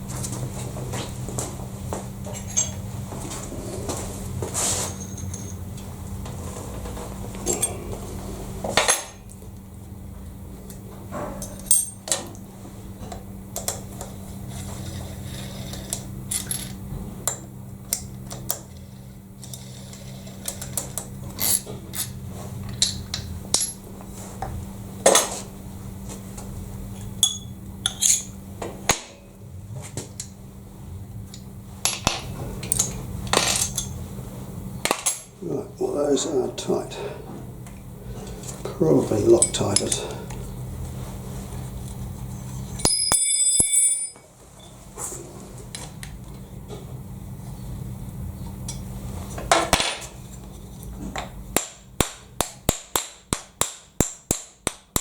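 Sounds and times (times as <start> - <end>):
steady low hum: 0.0 - 55.0
steel tools clinking: 2.4 - 2.8, 4.9 - 5.6, 27.2 - 28.3, 42.7 - 44.2
sharp metal clank: 42.8 - 44.2.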